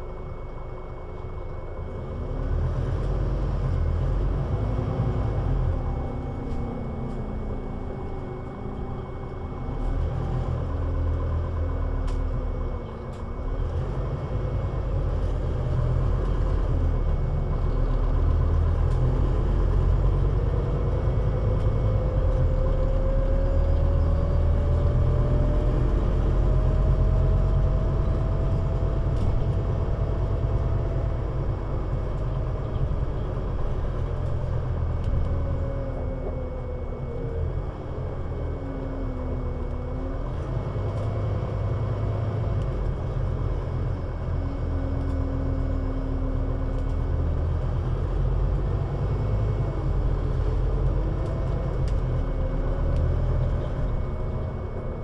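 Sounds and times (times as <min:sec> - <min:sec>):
bus engine low rumble: 0:00.0 - 0:55.0
drivetrain whine: 0:00.0 - 0:55.0.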